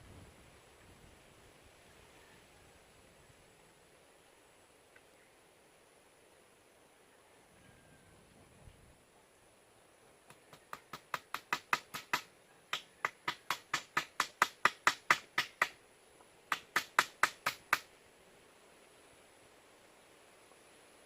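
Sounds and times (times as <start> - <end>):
sharp knocks: 10.6 - 15.8, 16.5 - 17.9.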